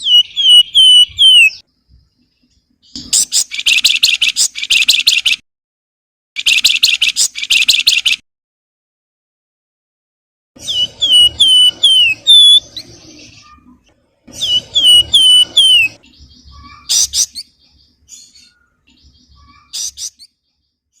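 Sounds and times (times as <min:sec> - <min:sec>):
bird harsh chattering: 0:00.0 - 0:01.6, 0:02.9 - 0:05.4, 0:06.4 - 0:08.2, 0:10.6 - 0:17.6, 0:18.2 - 0:20.3
bird whistling falling notes: 0:00.0 - 0:01.6, 0:10.6 - 0:13.6, 0:14.4 - 0:16.0.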